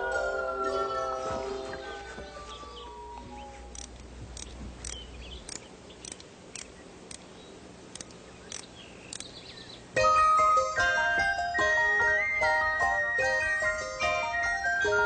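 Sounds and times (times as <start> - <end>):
music with chiming bell tones: 0.0 - 3.4, 10.0 - 15.0
faint high chirps and clicks: 3.2 - 7.3, 7.9 - 9.8.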